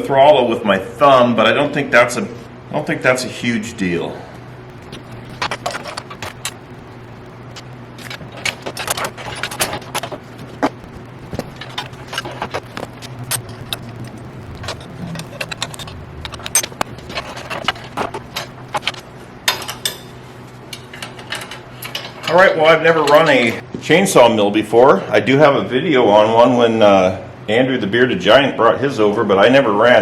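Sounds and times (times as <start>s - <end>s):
steady low hum: 0.0s - 30.0s
metal parts clinking and rattling: 4.9s - 6.6s, 7.6s - 23.6s.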